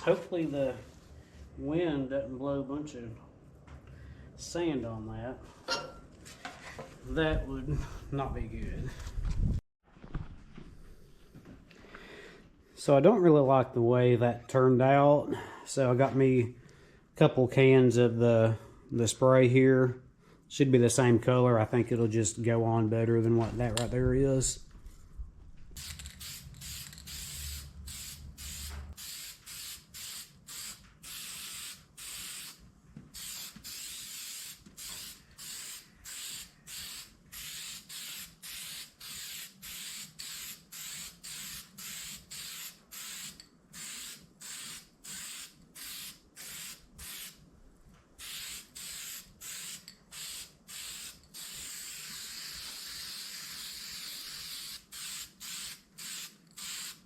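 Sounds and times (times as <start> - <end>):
aerosol spray can hissing: 25.8 - 32.6, 33.2 - 47.4, 48.2 - 57.0.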